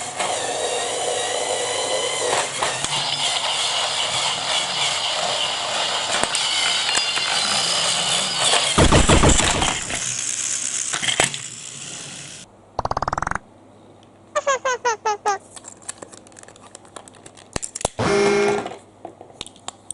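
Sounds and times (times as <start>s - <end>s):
toy train clattering and clicking: 0.0s - 12.4s.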